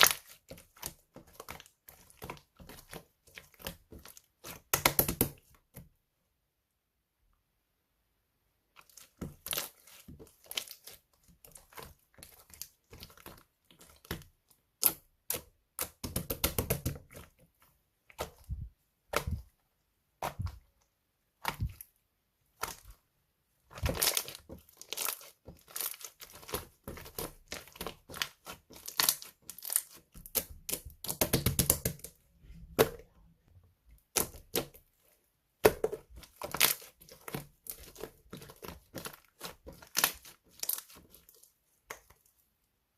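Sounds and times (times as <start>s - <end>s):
slime crackling and popping: 23.7s - 32.1s, 35.6s - 42.1s.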